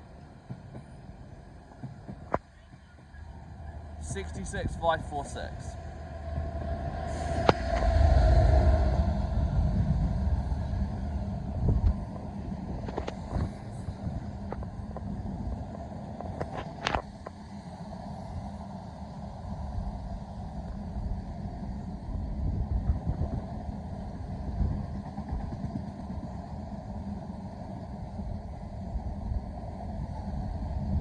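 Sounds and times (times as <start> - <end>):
wheels clicking over rail joints: 0.0 - 4.8
freight train rumbling past: 0.0 - 31.0.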